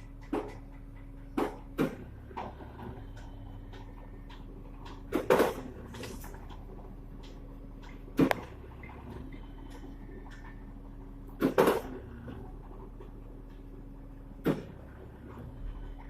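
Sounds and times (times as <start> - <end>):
sharp knocks and clanks: 0.0 - 10.7
truck engine humming: 0.0 - 16.0.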